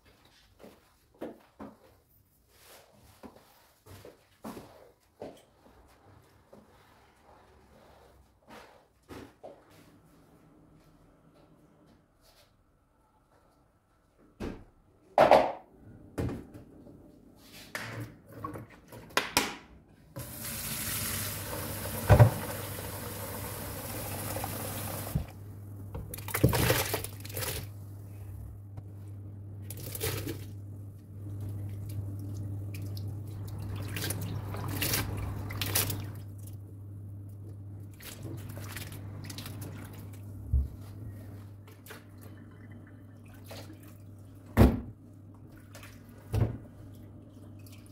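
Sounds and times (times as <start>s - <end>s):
kitchen tap running into sink: 20.2s - 25.3s.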